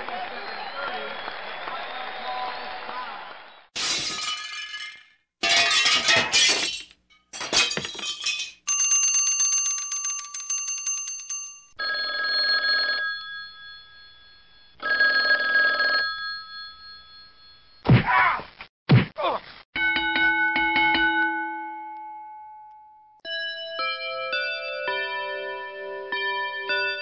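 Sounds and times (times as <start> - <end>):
bell ringing: 8.7 - 11.8.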